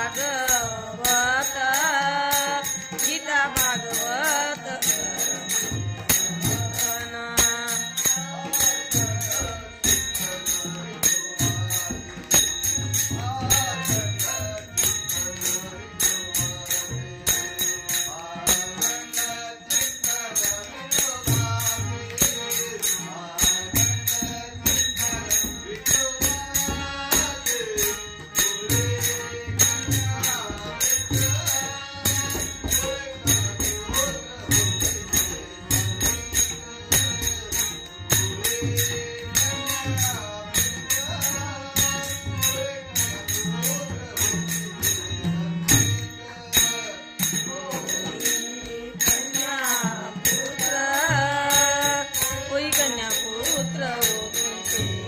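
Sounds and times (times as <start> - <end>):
person singing: 0.0 - 5.8, 6.4 - 16.2, 46.0 - 55.0
hand cymbals: 0.0 - 55.0.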